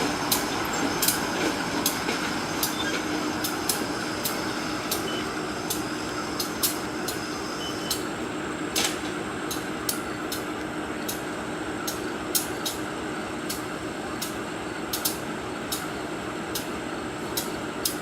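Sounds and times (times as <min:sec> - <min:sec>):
diesel train engine hum: 0:00.0 - 0:18.0
sharp clicks and clanks: 0:00.3 - 0:05.1.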